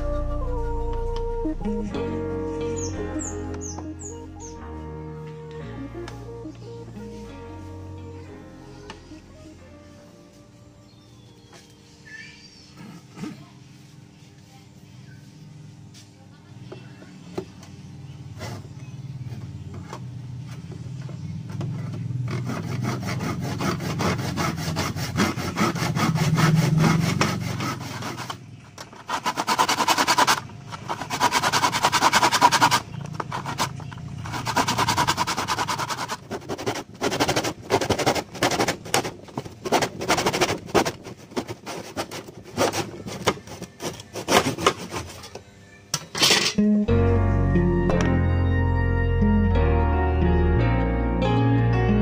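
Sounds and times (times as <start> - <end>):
hand saw cutting wood: 21.8 - 45.3.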